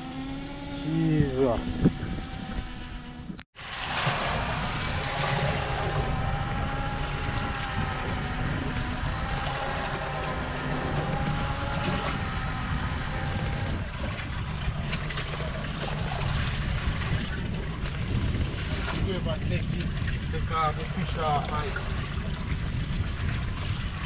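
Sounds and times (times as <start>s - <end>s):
fishing reel motor whining: 0.0s - 18.5s
wind and water rumble: 0.0s - 24.0s.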